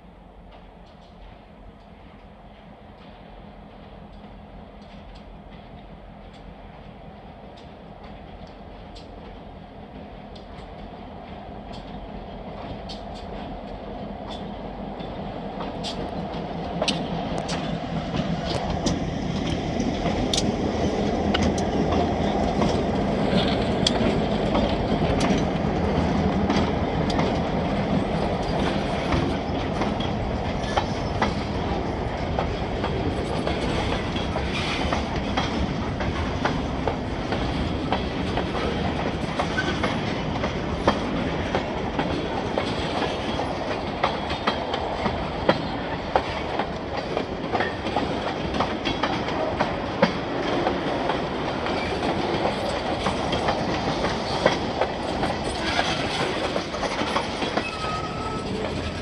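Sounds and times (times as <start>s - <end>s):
diesel locomotive engines rumbling: 0.0s - 59.0s
freight train rolling past: 0.0s - 59.0s.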